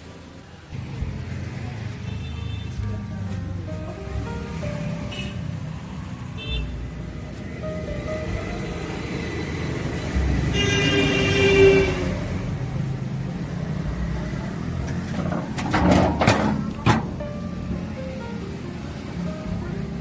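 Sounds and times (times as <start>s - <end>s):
traffic rumble: 0.0s - 20.0s
vehicle horn: 1.9s - 2.9s, 5.0s - 5.6s, 6.3s - 6.8s, 10.5s - 12.6s.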